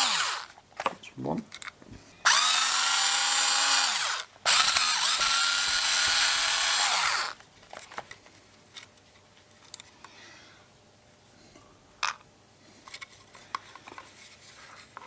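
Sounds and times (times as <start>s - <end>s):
cordless drill motor whine: 0.0s - 0.5s, 2.2s - 7.4s.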